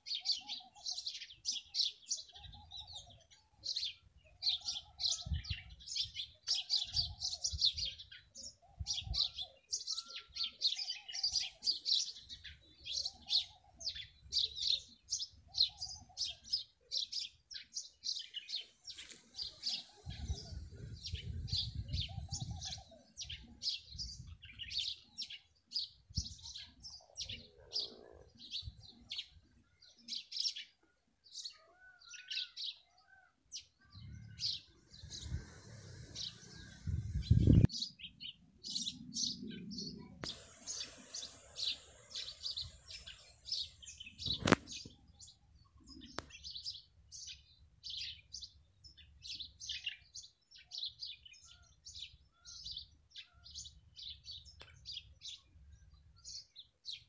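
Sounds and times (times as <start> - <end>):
songbirds chirping: 0.0 - 57.0
lower bird call: 31.5 - 38.1.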